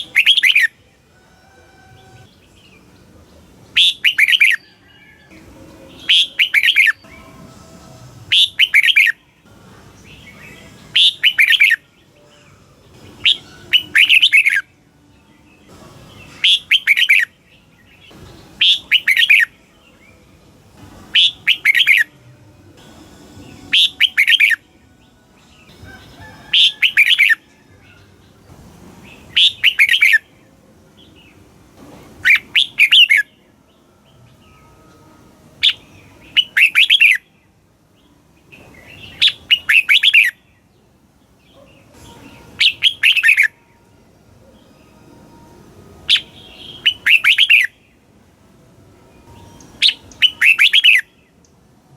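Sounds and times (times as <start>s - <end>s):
bird singing chirpy phrases: 0.0s - 0.8s, 2.3s - 4.8s, 5.7s - 7.4s, 8.3s - 14.6s, 15.4s - 20.2s, 21.1s - 22.2s, 23.4s - 24.6s, 29.1s - 30.3s, 32.2s - 34.8s, 35.6s - 43.5s, 46.1s - 48.0s, 49.2s - 51.6s.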